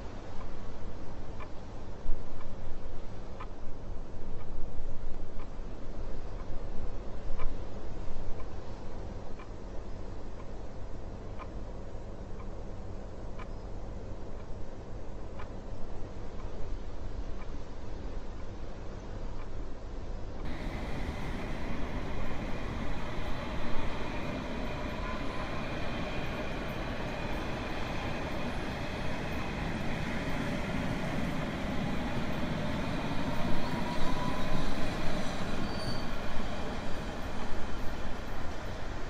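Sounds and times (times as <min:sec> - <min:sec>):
train wheels rumbling on rails: 0:20.4 - 0:39.0
thin rising squeals: 0:20.5 - 0:38.4.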